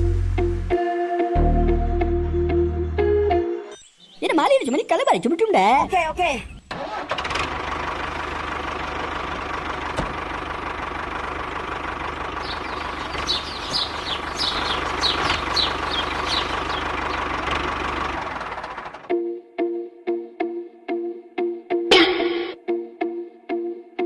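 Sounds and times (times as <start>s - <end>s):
high falling chirps: 12.4s - 19.0s
small motor knocking hum: 12.4s - 19.1s.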